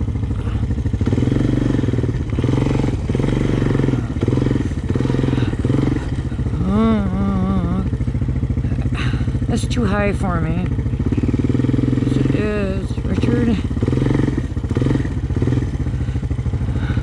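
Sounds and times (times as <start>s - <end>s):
atv engine idling: 0.0s - 17.0s
short wavering vocal sound: 5.3s - 8.0s.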